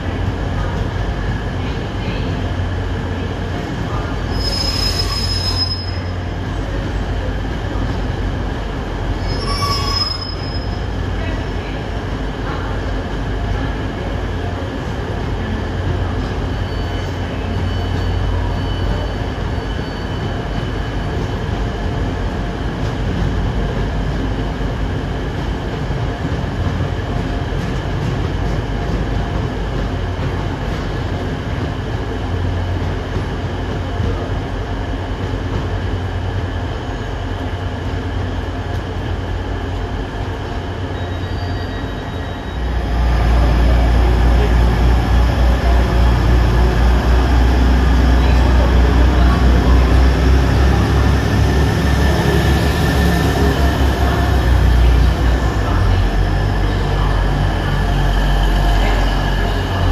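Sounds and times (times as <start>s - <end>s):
train wheels rumbling on rails: 0.0s - 59.9s
high squeal of wheels: 4.3s - 6.2s, 9.2s - 10.8s, 41.0s - 42.7s.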